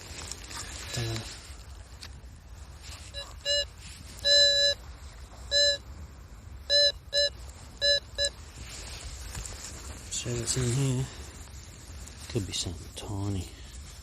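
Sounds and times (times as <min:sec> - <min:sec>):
metal detector beeping: 0:03.1 - 0:04.9, 0:05.5 - 0:05.9, 0:06.7 - 0:08.4.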